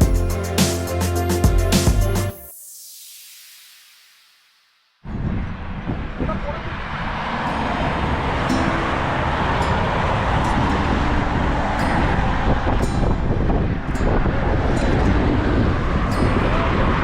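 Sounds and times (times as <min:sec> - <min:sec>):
road and tyre noise: 0:05.0 - 0:17.0.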